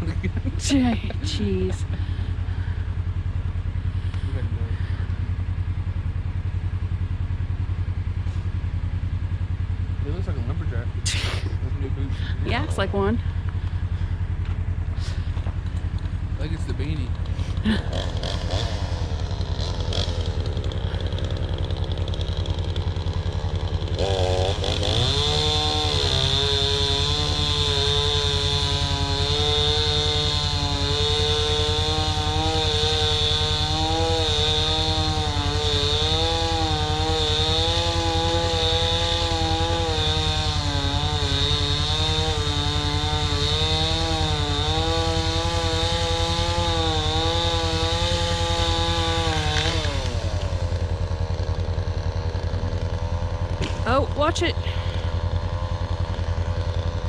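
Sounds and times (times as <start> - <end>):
chainsaw cutting through tree trunk: 0.0 - 6.0, 10.4 - 57.0
vehicle engine idling: 0.0 - 38.5, 49.5 - 57.0.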